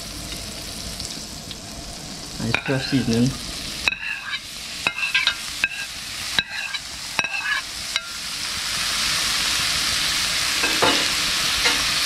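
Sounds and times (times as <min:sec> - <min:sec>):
seasoning sizzling in oil: 0:00.0 - 0:12.0
spoon knocking on ceramic plate: 0:10.6 - 0:11.1.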